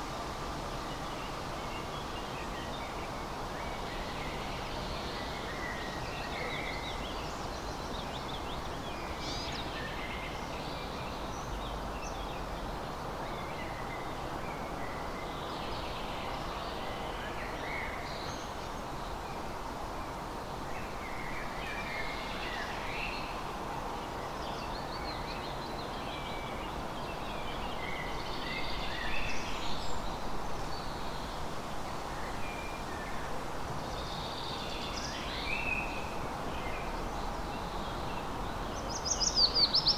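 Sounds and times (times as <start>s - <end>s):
songbirds chirping and trilling: 0.9s - 14.0s, 32.2s - 39.9s.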